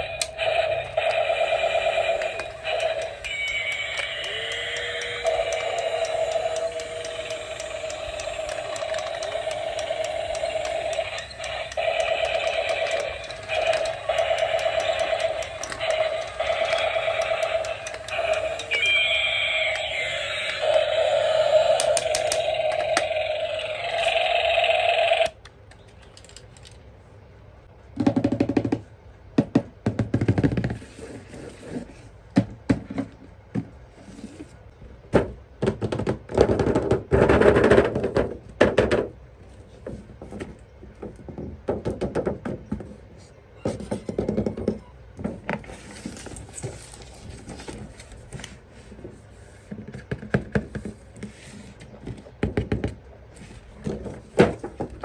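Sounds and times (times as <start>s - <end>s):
plastic toys clicking and rattling: 0.0s - 26.9s, 45.7s - 48.6s
electronic toy tune: 0.3s - 25.3s.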